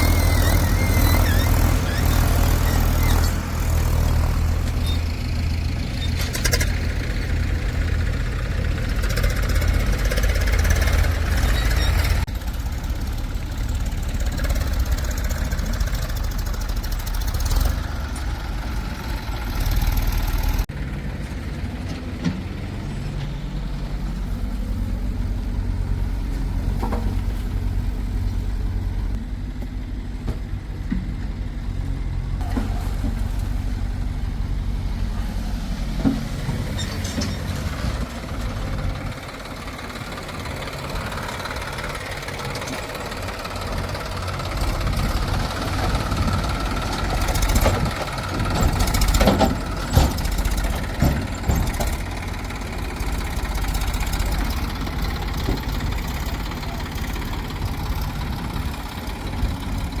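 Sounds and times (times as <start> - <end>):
diesel engine running: 0.0 - 60.0
knocks and clanks: 45.8 - 52.2.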